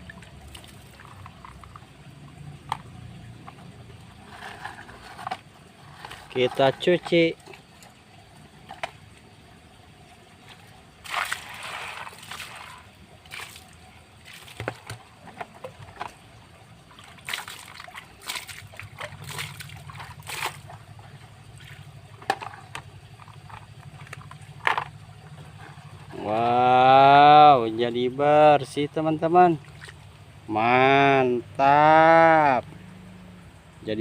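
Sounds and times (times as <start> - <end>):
water sloshing and splashing: 0.0 - 27.9, 28.5 - 31.5.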